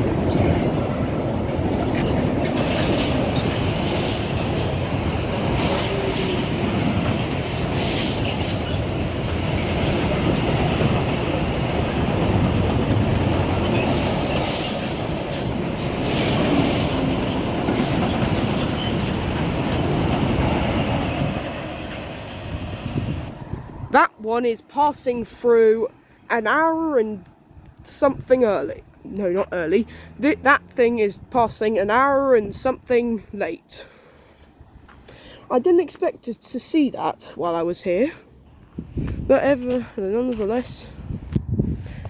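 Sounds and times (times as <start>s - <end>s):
freight train rumbling past: 0.0s - 33.0s
train wheel clicks and squeals: 1.7s - 22.2s.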